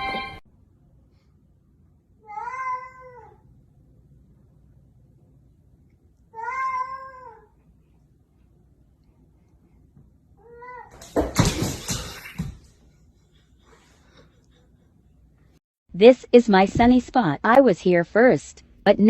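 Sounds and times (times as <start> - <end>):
cat meowing: 2.2 - 3.4, 6.4 - 7.5.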